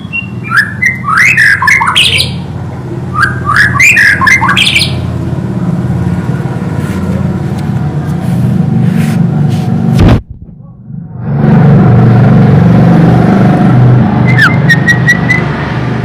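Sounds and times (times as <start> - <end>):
bird singing harsh sweeping notes: 0.0 - 2.5, 3.1 - 5.1
steady low hum: 0.0 - 14.2.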